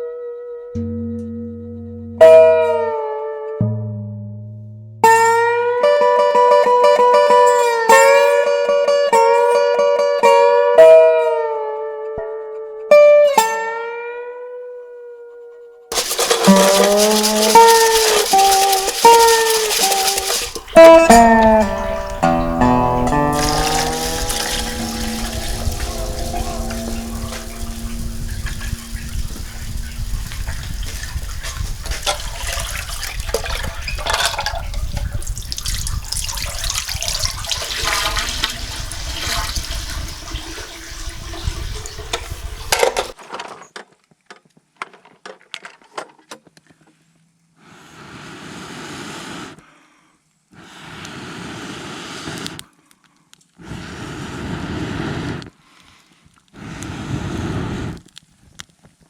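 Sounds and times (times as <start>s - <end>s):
hiss bursts: 15.9s - 32.4s, 47.6s - 49.6s, 50.5s - 52.7s, 53.6s - 55.5s, 56.6s - 58.0s
water running and splashing: 15.9s - 43.2s.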